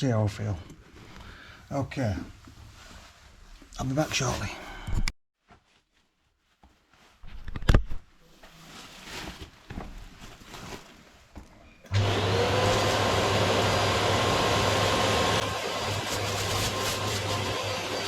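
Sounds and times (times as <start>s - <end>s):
vacuum cleaner running: 11.9s - 18.0s.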